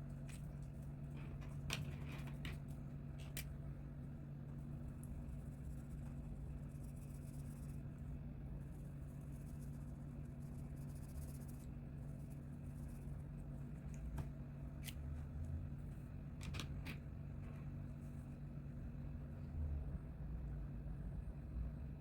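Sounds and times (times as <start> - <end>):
steady low hum: 0.0 - 22.0
coloring strokes scratching paper: 5.2 - 7.9, 8.6 - 13.2.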